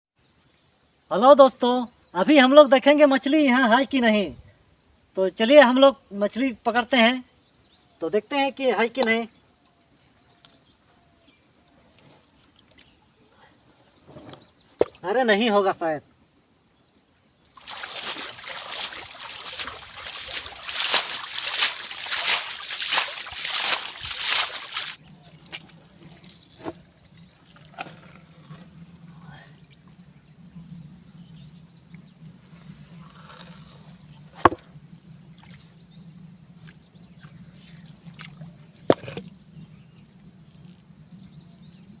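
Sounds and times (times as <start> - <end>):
water trickling: 17.5 - 31.0
water splashing and sloshing: 17.6 - 30.0, 36.6 - 39.3.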